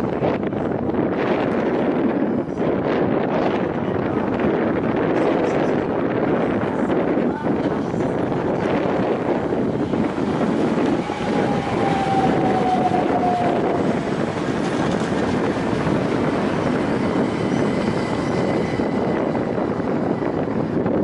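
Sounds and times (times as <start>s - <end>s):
electric train passing: 8.0s - 21.0s
short falling whine: 9.9s - 16.8s.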